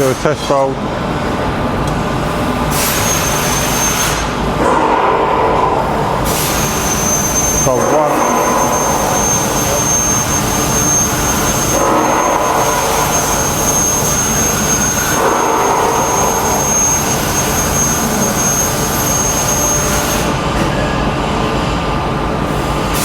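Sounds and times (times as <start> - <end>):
press brake machine noise: 2.7 - 21.1
thin high whine: 2.7 - 21.7.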